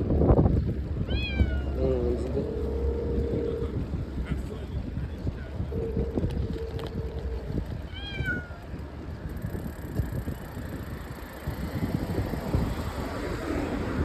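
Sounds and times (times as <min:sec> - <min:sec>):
wind and road noise: 0:00.0 - 0:14.0
cat meowing: 0:01.0 - 0:02.6, 0:07.9 - 0:08.6.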